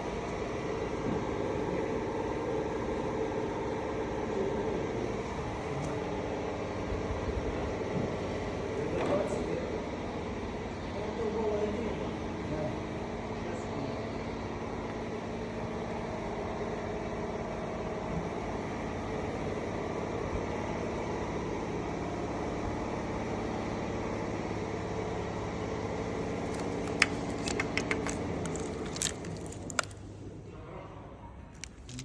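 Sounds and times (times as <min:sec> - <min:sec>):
sharp clicks: 0:26.5 - 0:30.0.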